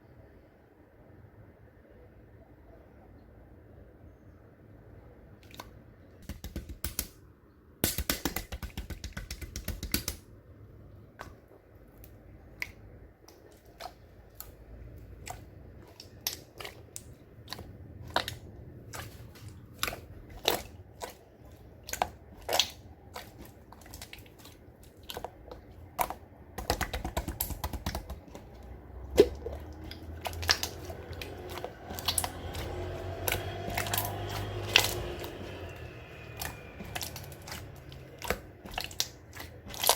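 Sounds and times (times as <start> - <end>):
slime crackling: 12.0 - 39.9.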